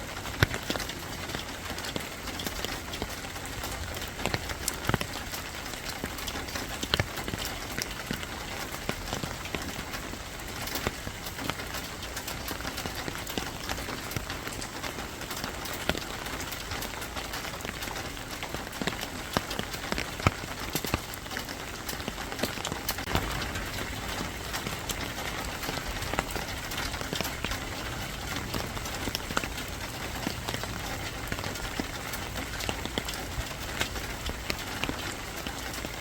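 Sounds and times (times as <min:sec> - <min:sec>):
drops ticking on a hard surface: 0:00.0 - 0:36.0
steady rain falling: 0:00.0 - 0:36.0.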